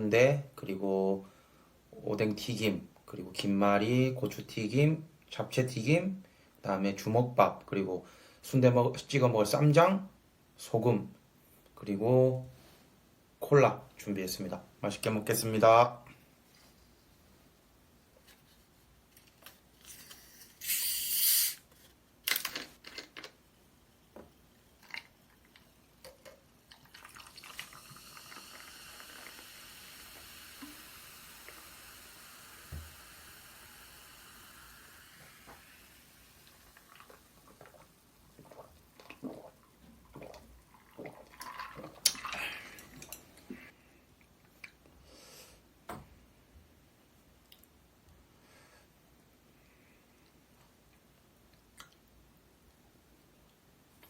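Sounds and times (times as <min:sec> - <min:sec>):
loud short hiss: 0:19.9 - 0:21.7
cola pouring and fizzing: 0:24.7 - 0:43.4.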